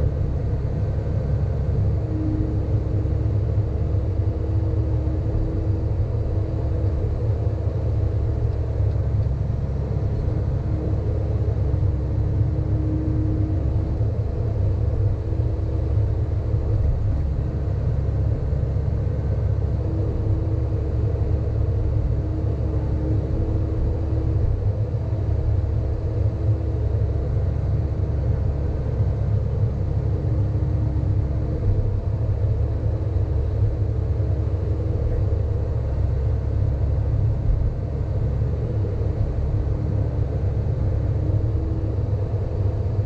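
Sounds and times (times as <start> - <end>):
excavator diesel engine rumble: 0.0 - 43.0.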